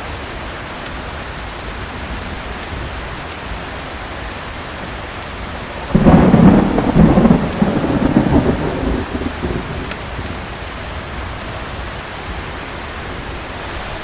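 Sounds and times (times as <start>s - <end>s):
heavy rain: 0.0s - 14.0s
thunder clap and rumble: 5.6s - 12.5s.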